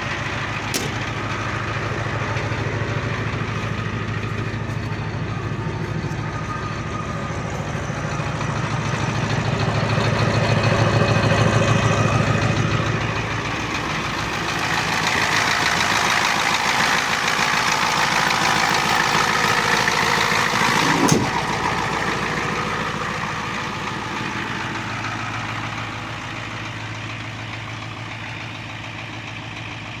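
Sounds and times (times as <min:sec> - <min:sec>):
diesel engine idling: 0:00.0 - 0:30.0
sharp thump: 0:00.7 - 0:01.4, 0:21.0 - 0:21.4.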